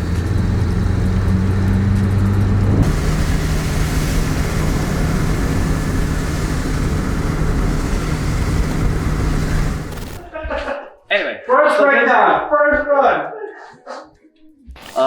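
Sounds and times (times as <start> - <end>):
car engine running: 0.0 - 10.2
wind and road hiss: 0.0 - 10.2.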